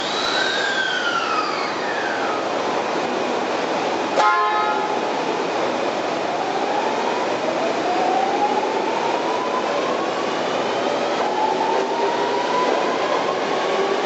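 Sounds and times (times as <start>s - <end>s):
electric train motor whine: 0.0s - 3.0s
train running noise: 0.0s - 14.0s
train horn toot: 4.2s - 5.0s.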